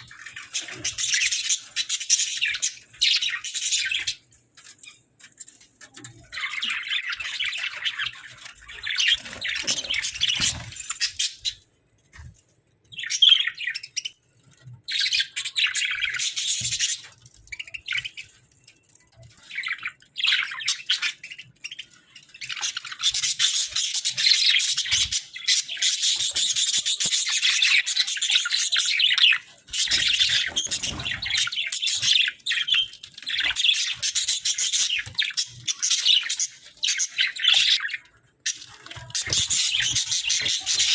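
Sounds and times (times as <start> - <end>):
budgerigars chirping: 19.5 - 40.9.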